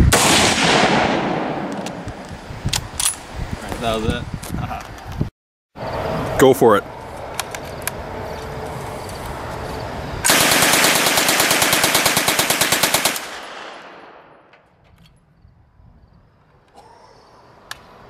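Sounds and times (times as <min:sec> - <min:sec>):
automatic gunfire with echo: 0:00.1 - 0:02.0, 0:10.3 - 0:14.5.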